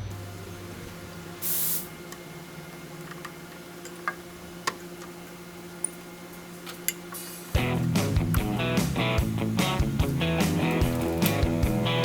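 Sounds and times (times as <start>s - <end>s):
steady low hum: 0.0s - 12.0s
spray bottle squirt: 1.4s - 1.9s.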